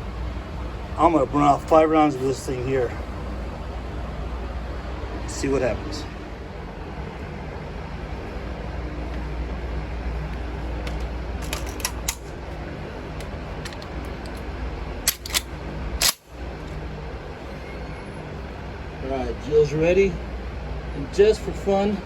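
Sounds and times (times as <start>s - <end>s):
steady low rumble: 0.0s - 22.0s
shotgun shells loading clicks: 11.0s - 12.3s, 13.2s - 16.3s.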